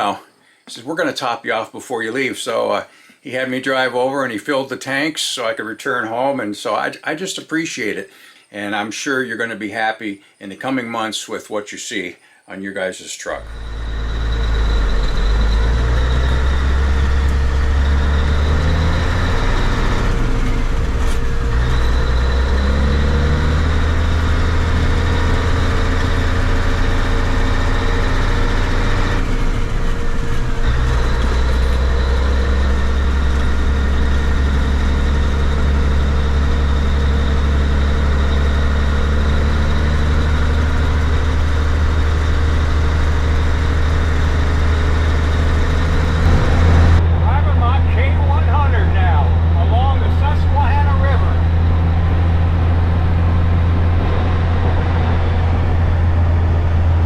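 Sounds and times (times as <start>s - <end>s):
diesel truck engine running: 13.4s - 57.0s.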